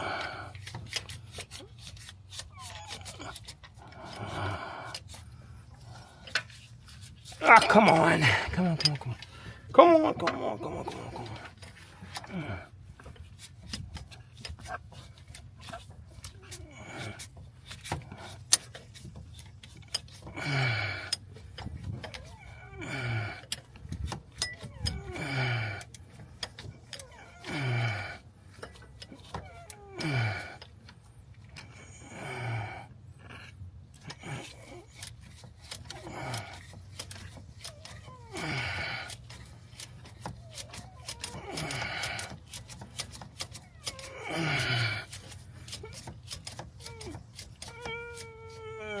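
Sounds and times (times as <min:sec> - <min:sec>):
man grunting with effort: 0:07.4 - 0:11.5, 0:12.2 - 0:12.7, 0:20.3 - 0:21.1, 0:22.8 - 0:23.4, 0:24.9 - 0:25.8, 0:27.4 - 0:28.2, 0:30.0 - 0:30.6, 0:38.2 - 0:39.1, 0:41.2 - 0:42.3, 0:43.9 - 0:45.1.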